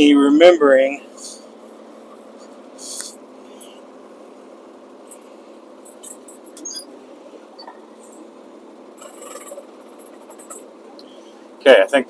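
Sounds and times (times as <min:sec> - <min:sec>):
muffled diesel engine idling: 0:00.0 - 0:12.0
short squeaks and clicks: 0:05.9 - 0:07.0, 0:07.6 - 0:07.8.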